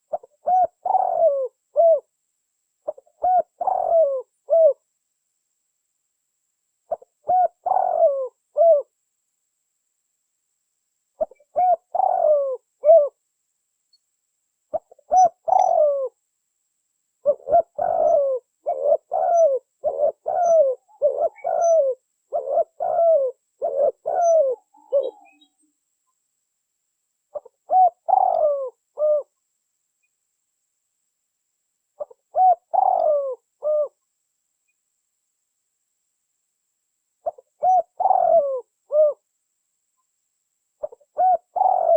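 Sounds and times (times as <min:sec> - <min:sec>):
dove cooing: 0:00.0 - 0:02.1, 0:02.8 - 0:04.8, 0:06.9 - 0:08.9, 0:11.2 - 0:13.2, 0:14.7 - 0:16.2, 0:17.2 - 0:25.6, 0:27.3 - 0:29.4, 0:32.0 - 0:34.0, 0:37.2 - 0:39.2, 0:40.8 - 0:41.9.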